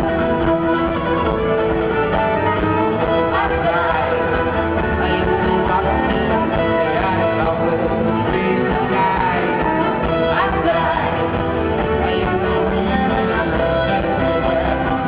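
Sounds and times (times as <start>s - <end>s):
fiddle: 0.0s - 15.0s
folk-rock band playing: 0.0s - 15.0s
person singing: 0.0s - 15.0s.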